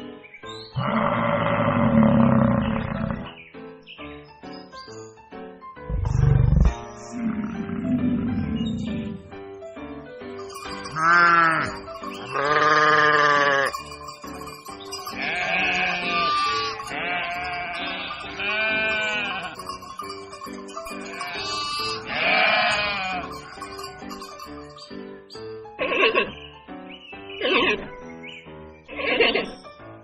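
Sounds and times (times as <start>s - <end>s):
background music: 0.0s - 30.0s
animal bleating: 0.8s - 3.3s, 10.8s - 24.4s, 25.8s - 26.4s, 28.9s - 29.6s.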